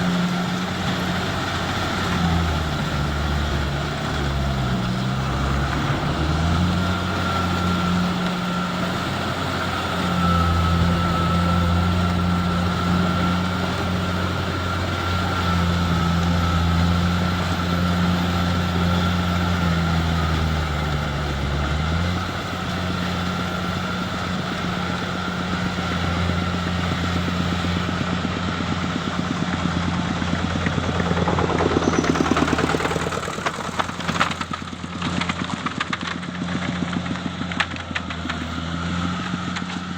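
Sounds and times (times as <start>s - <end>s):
high whine: 0.0s - 35.4s
harvester engine running: 0.0s - 39.9s
rapid mechanical clatter: 28.0s - 38.4s.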